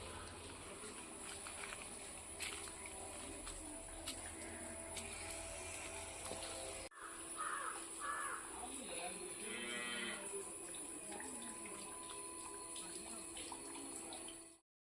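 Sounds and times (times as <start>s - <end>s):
crow cawing: 7.0s - 8.6s
cow mooing: 9.4s - 10.3s.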